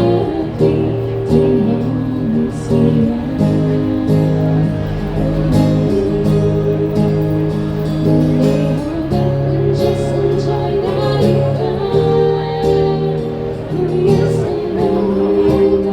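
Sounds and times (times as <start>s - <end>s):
acoustic guitar strumming chords: 0.0s - 15.9s.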